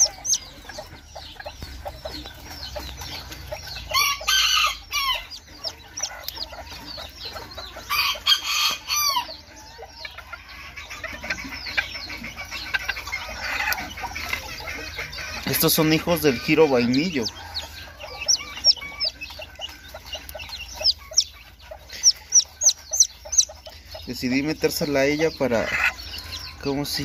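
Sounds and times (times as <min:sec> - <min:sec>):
chick peeping: 0:00.0 - 0:27.0
chicken calling harshly: 0:03.9 - 0:06.0, 0:07.9 - 0:09.4.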